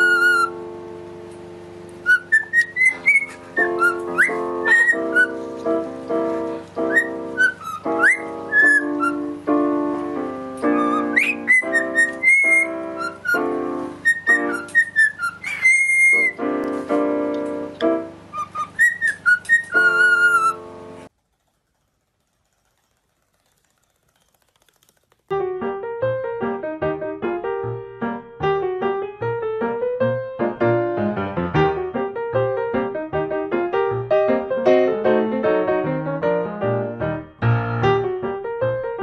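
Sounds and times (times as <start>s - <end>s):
cockatiel whistling a tune: 0.0s - 0.6s, 2.0s - 5.4s, 6.8s - 9.3s, 10.6s - 16.5s, 18.3s - 20.6s
piano chords: 0.0s - 21.1s, 25.3s - 39.0s.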